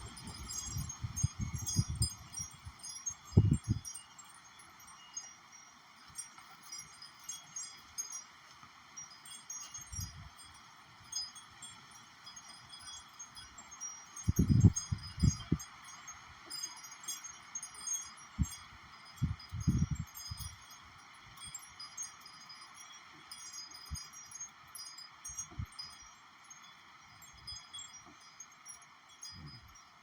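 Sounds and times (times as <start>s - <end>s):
gusty wind: 0.0s - 3.9s, 14.2s - 15.6s, 19.2s - 20.6s
wind buffeting microphone: 0.0s - 3.9s, 14.2s - 15.6s, 19.2s - 20.6s
wind chimes ringing: 0.0s - 30.0s.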